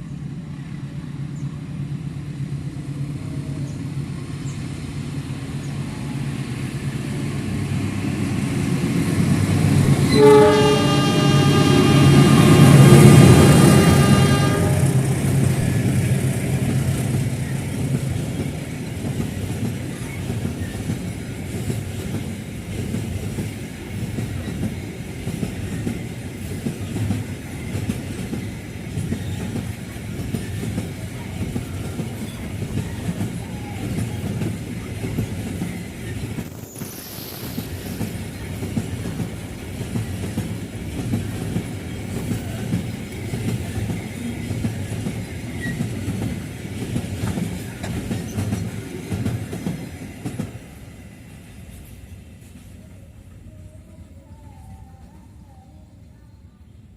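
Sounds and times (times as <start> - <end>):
train rumble: 0.0 - 56.9
train wheels clattering over rails: 15.2 - 50.7.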